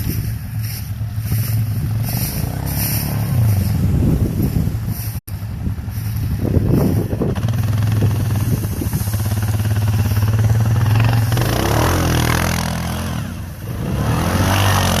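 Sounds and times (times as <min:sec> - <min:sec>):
diesel pickup engine running: 0:00.0 - 0:14.4.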